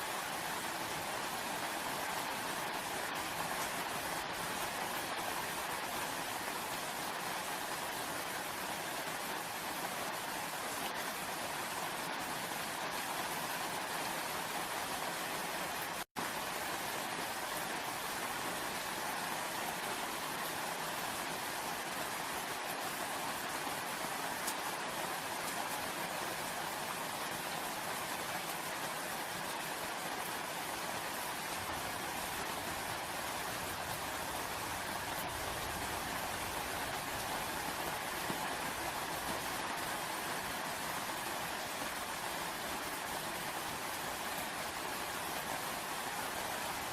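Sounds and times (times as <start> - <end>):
steady rain falling: 0.0 - 46.9.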